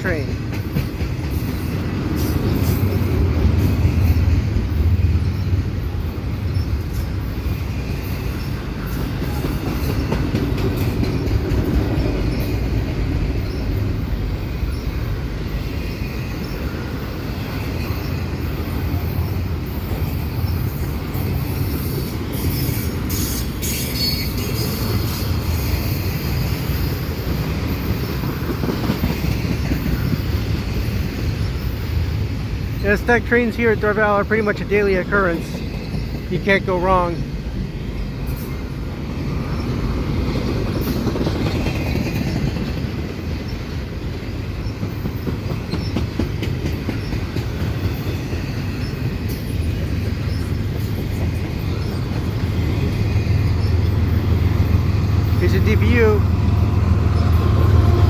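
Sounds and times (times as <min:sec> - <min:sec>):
wheels clicking over rail joints: 0:00.0 - 0:05.6, 0:06.2 - 0:37.1, 0:38.2 - 0:58.0
train wheels rumbling on rails: 0:00.0 - 0:58.0
high wheel squeal: 0:17.9 - 0:28.2.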